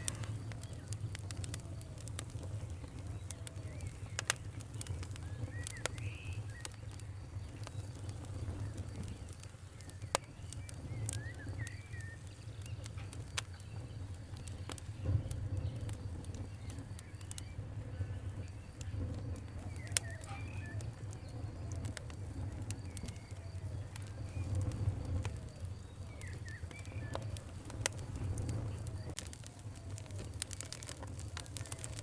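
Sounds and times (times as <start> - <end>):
fire crackling and popping: 0.0 - 32.0
birds calling: 16.6 - 28.0.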